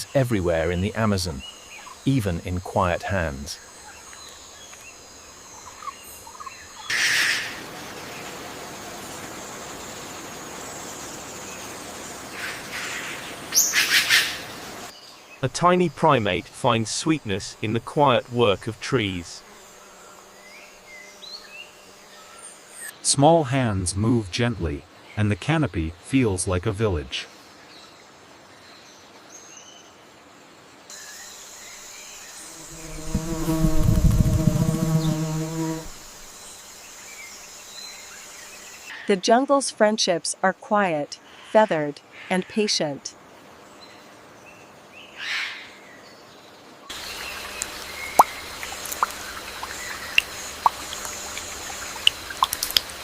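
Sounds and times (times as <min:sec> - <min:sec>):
high insect whine: 0:00.0 - 0:23.0, 0:30.3 - 0:38.9, 0:46.8 - 0:53.0
low insect buzz: 0:00.0 - 0:23.0, 0:27.3 - 0:38.9, 0:46.3 - 0:53.0
jungle hiss: 0:00.0 - 0:24.2, 0:30.4 - 0:39.0, 0:46.9 - 0:53.0
water drops plopping into water: 0:47.6 - 0:52.9.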